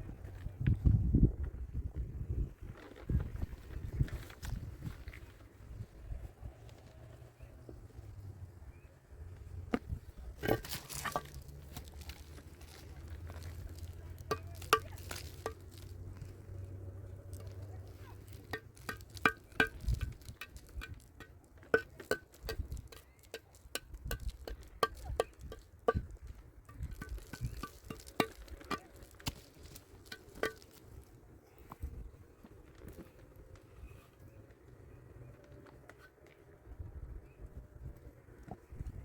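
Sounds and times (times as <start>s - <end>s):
hard objects clinking: 10.3s - 31.2s.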